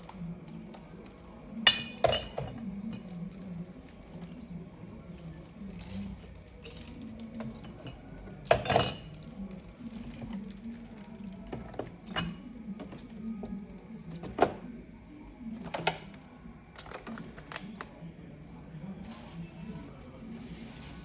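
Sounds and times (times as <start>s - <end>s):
dishes clattering: 1.6s - 3.1s, 7.2s - 9.2s, 11.5s - 13.5s
dishes knocking and clinking: 1.7s - 2.6s.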